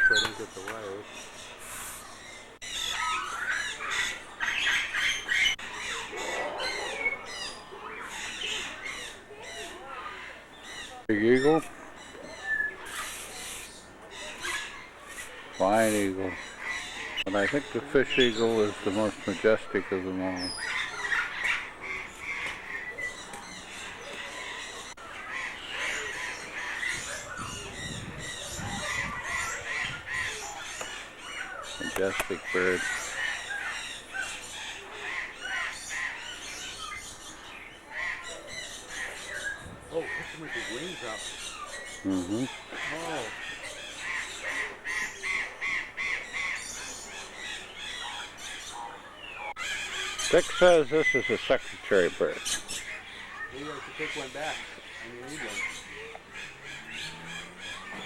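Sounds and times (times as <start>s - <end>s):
birds squawking: 0.0s - 58.0s.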